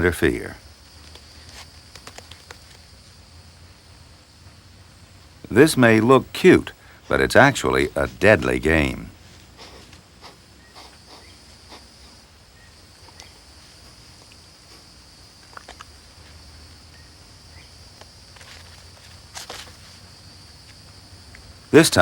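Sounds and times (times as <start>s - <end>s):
tape hiss: 0.0s - 22.0s
kittens scuffling and tapping: 0.9s - 3.0s.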